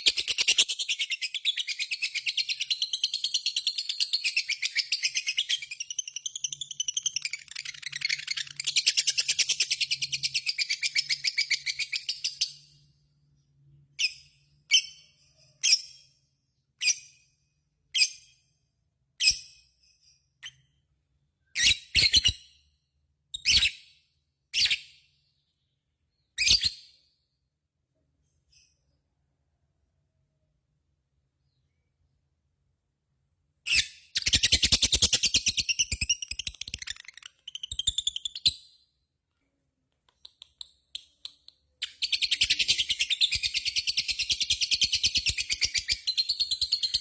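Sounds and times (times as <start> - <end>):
sharp bird chirps: 0.0 - 27.4, 33.6 - 39.1, 40.1 - 47.0.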